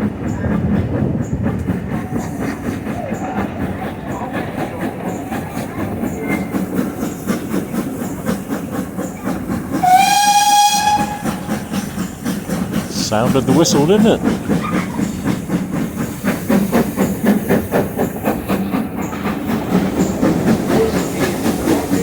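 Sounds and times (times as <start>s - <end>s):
steam train rumbling: 0.0s - 22.0s
steam whistle blast: 9.8s - 11.4s.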